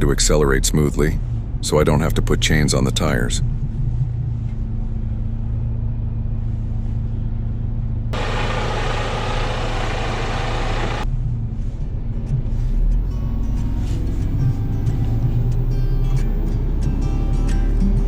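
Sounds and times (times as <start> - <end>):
loud hiss: 8.2 - 11.0
diesel truck engine running: 8.2 - 18.0.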